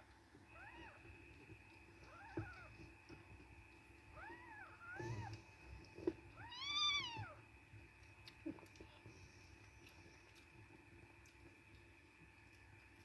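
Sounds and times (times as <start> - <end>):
kittens mewing: 4.2 - 5.5.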